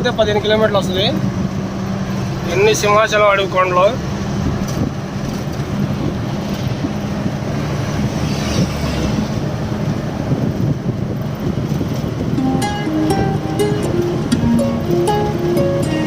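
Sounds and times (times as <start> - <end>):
road noise: 0.0 - 16.0
lorry engine drone: 3.4 - 16.0.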